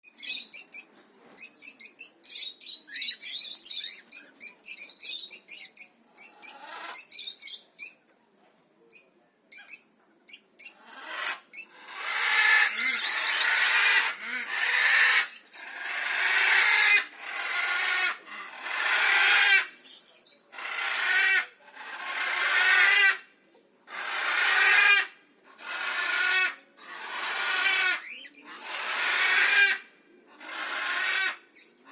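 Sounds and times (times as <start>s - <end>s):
cockatiels chattering calls: 0.2s - 8.0s, 9.6s - 23.2s, 23.9s - 31.9s
cockatiels chirping: 0.2s - 8.0s.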